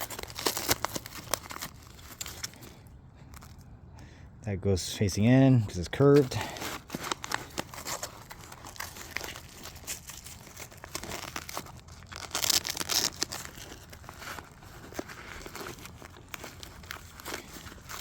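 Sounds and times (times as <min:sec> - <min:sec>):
scratchy ripping: 0:00.0 - 0:02.8, 0:06.2 - 0:18.0
nylon fabric rustling and scraping: 0:06.2 - 0:18.0.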